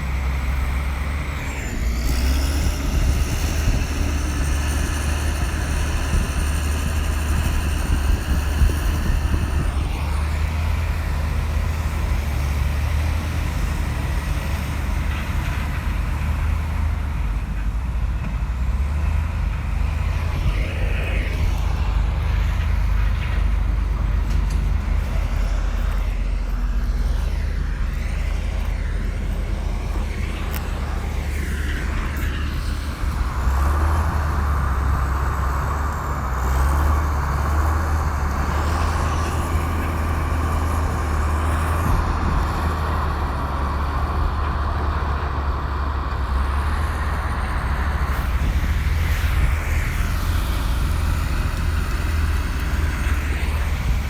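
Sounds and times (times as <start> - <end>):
bulldozer diesel engine running: 0.0 - 54.0
high steady whine: 19.7 - 36.3.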